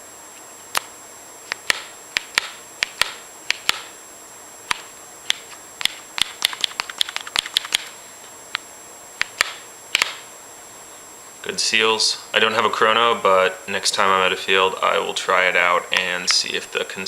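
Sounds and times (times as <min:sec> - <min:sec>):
paintball marker firing: 0:01.6 - 0:03.9, 0:09.2 - 0:10.2.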